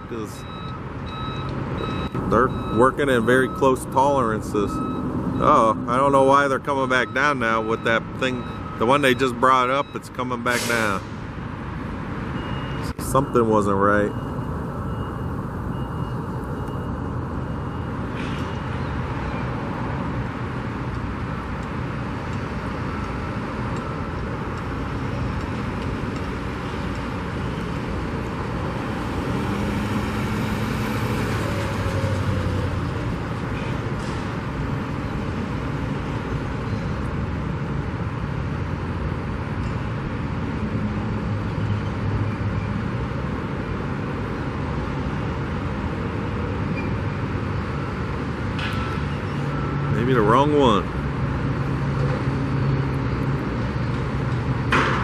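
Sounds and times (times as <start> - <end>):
road traffic engine rumble: 0.0 - 55.0
vehicle passing: 1.2 - 8.8, 27.2 - 36.3.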